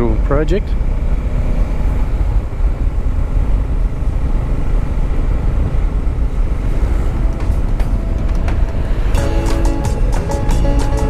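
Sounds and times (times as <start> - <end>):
motorcycle engine: 0.0 - 11.0
wind rumbling on microphone: 0.0 - 11.0.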